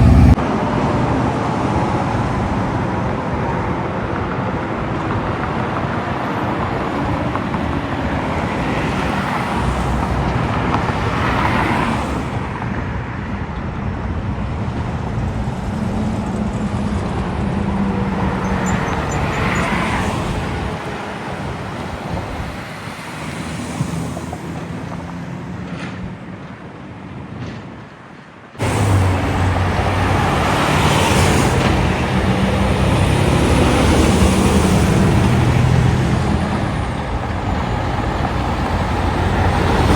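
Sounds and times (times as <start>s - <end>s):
heavy engine running low: 0.0s - 8.4s, 28.6s - 39.9s
traffic passing: 0.0s - 39.9s.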